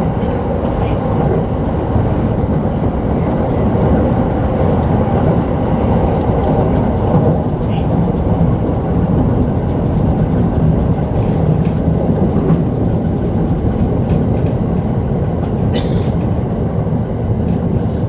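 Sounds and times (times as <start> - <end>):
electric train wheels rumbling: 0.0 - 18.0.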